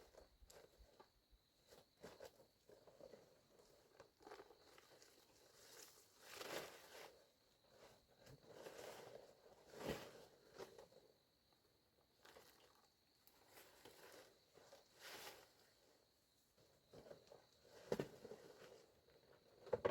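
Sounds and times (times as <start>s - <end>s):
faint rustling and scraping: 0.0s - 19.9s.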